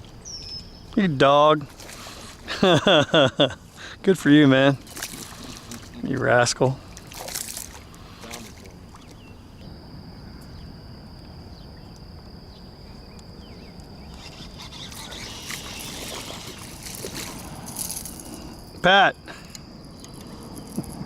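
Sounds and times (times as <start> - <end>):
thin high whine: 7.8 - 21.0.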